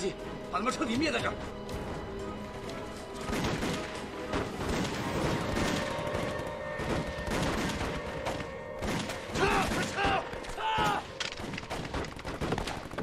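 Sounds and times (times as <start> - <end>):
dramatic orchestral music: 0.0 - 13.0
rifles and machine guns firing: 3.3 - 10.4.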